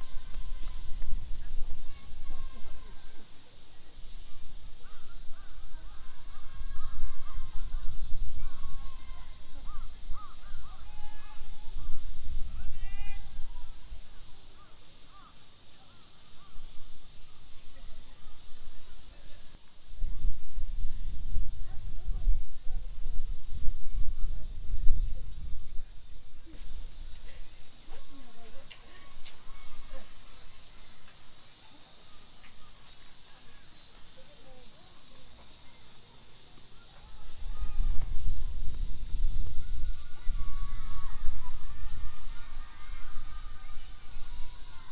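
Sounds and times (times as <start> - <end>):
faint distant voices: 0.0 - 44.9
high-pitched hiss: 0.0 - 44.9
high-pitched insect drone: 0.0 - 44.9
crows cawing: 8.9 - 11.5.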